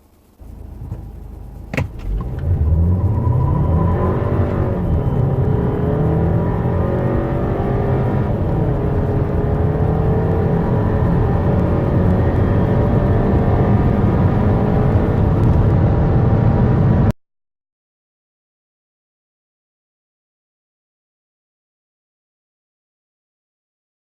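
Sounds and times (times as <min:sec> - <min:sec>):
car engine accelerating hard: 0:00.0 - 0:17.1.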